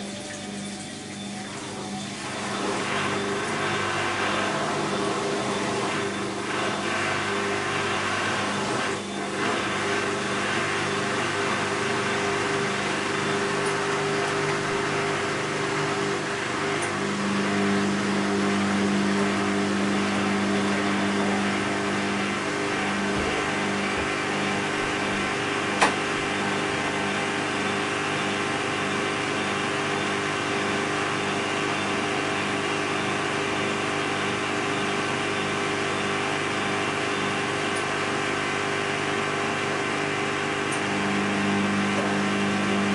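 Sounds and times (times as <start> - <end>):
washing machine motor hum: 0.0 - 42.9
washing machine drum turning: 22.4 - 27.2.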